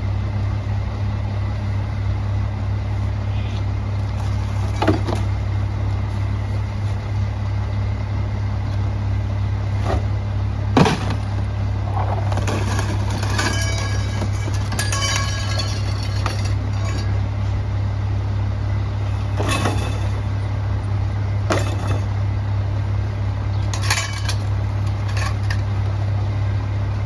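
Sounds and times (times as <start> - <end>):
garbage truck engine idling: 0.0 - 27.0
clinking rattles: 12.4 - 17.2, 23.6 - 25.7.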